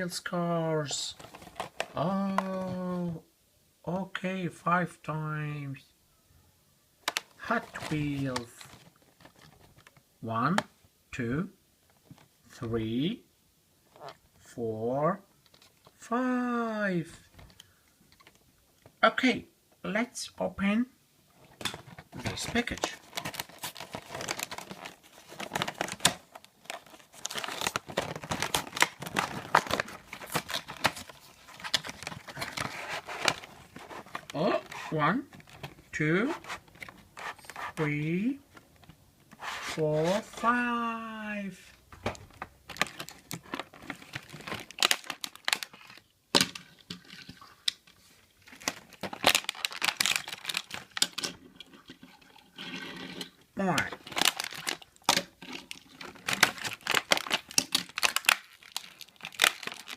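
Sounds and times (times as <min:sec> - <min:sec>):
packaging being torn and crinkled: 0:22.4 - 0:35.7, 0:42.7 - 0:47.8, 0:48.4 - 0:51.9, 0:53.8 - 0:59.9.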